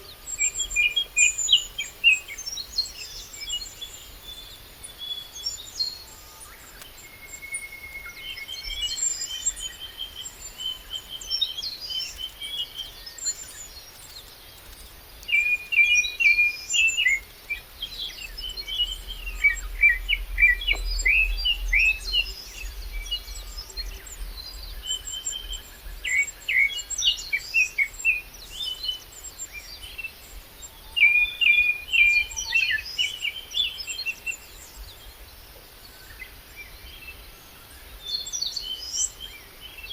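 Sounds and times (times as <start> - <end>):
songbirds singing and trilling: 0.0 - 39.9
wind rumble on microphone: 17.1 - 26.1.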